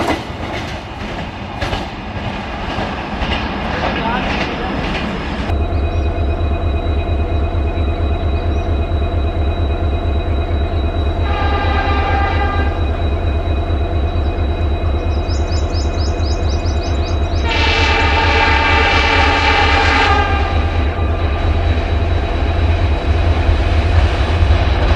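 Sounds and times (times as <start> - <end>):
diesel locomotive engine rumble: 0.0 - 24.9
train horn blasts: 11.2 - 12.9, 17.3 - 21.6.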